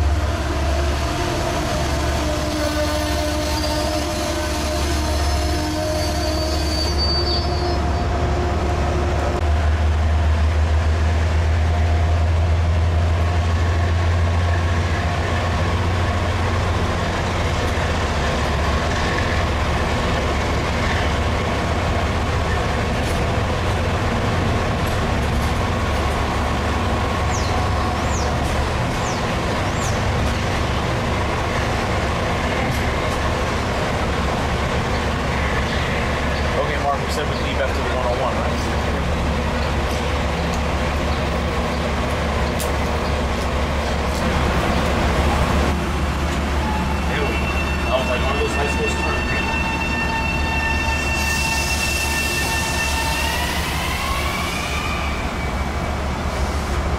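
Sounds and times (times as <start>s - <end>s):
train rumbling: 0.0s - 56.9s
short high squeaks: 5.7s - 8.0s.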